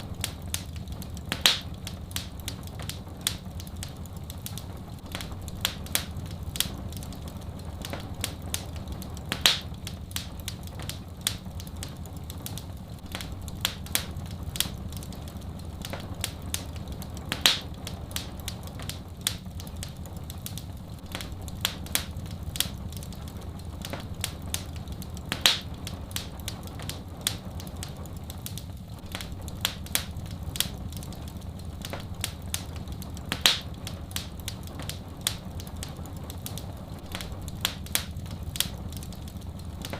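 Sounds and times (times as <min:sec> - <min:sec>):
fire popping: 0:00.0 - 0:39.9
wood fire crackling: 0:00.0 - 0:39.9.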